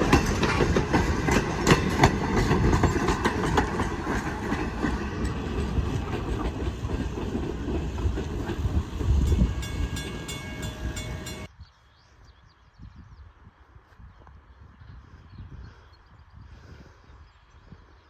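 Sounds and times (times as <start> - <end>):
train cars rumbling past: 0.0 - 11.5
wheels clicking over rail joints: 0.0 - 11.5.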